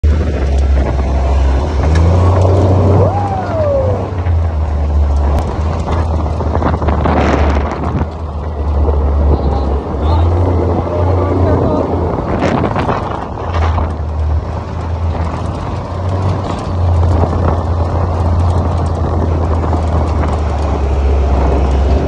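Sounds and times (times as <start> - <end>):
atv engine running: 0.0 - 22.0
wind buffeting microphone: 0.0 - 22.0
rising and falling tone: 0.4 - 5.6.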